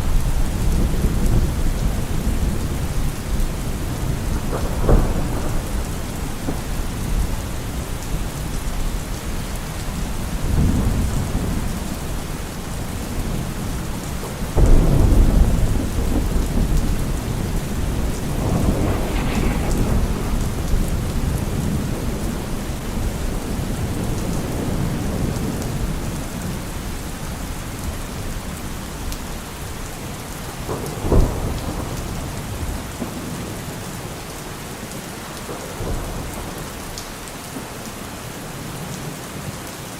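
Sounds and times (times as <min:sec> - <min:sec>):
thunder rumbling and clapping: 0:00.0 - 0:26.9, 0:30.4 - 0:34.0
steady rain: 0:00.0 - 0:39.9.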